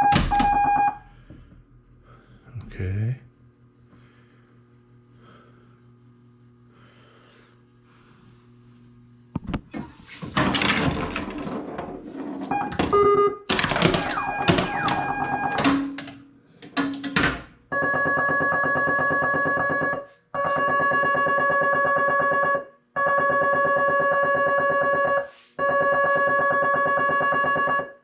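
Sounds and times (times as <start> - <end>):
faint low electrical hum: 0.0 - 17.8
pinball flippers and ball clattering: 9.7 - 17.6.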